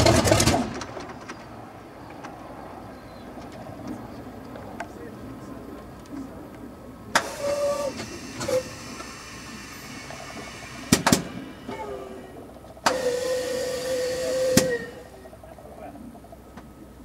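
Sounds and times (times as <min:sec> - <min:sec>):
starter whine with hiss: 0:07.1 - 0:15.3.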